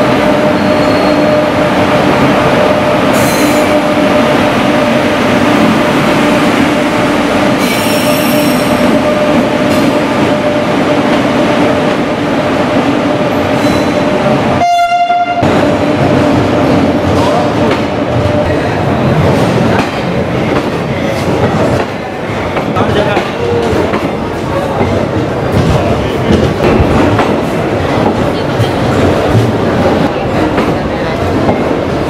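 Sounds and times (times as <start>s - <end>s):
train wheels rumbling: 0.0s - 32.0s
train horn blast: 14.6s - 15.8s.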